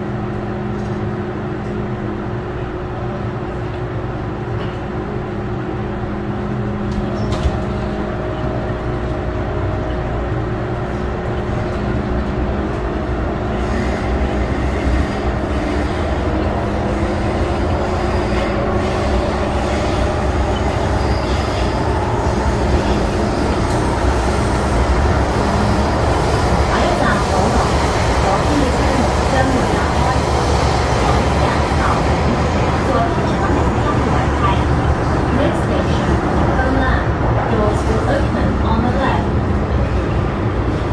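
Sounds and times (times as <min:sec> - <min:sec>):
train rumbling along track: 0:00.0 - 0:40.9.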